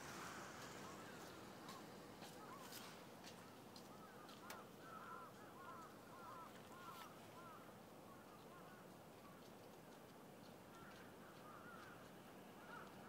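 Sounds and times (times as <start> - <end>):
steady background hiss: 0.0 - 13.0
faint bird chirps: 3.9 - 9.4.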